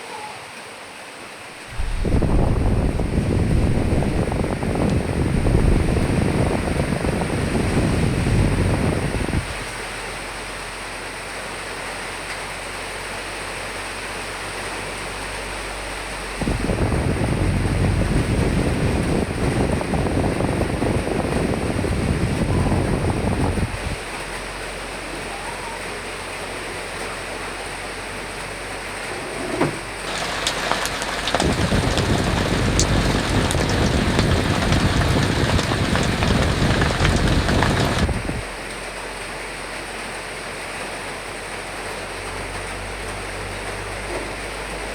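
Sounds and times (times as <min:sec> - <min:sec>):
rain hiss: 0:00.0 - 0:44.9
heavy rain with drop ticks: 0:01.6 - 0:10.7, 0:14.1 - 0:25.5, 0:26.4 - 0:44.9
low wind rumble: 0:01.7 - 0:09.8, 0:16.4 - 0:24.2, 0:28.6 - 0:38.7.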